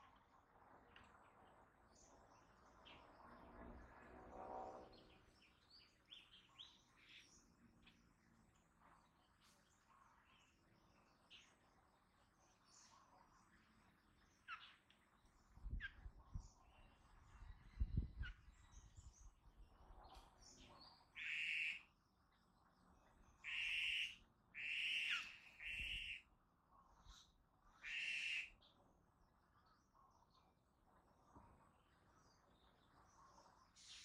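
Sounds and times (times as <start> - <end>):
faint bird chirps: 9.1 - 19.4, 32.0 - 34.0
birds harsh scratchy calls: 21.2 - 21.8, 23.4 - 26.2, 27.8 - 28.5.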